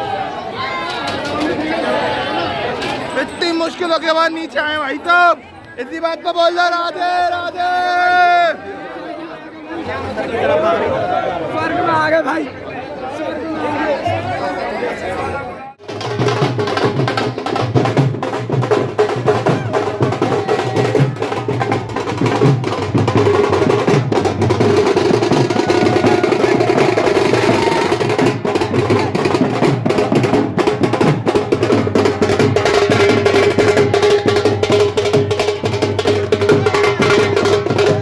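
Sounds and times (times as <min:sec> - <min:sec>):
fast dense drumming: 0:15.8 - 0:38.0
loud festival music: 0:15.8 - 0:38.0.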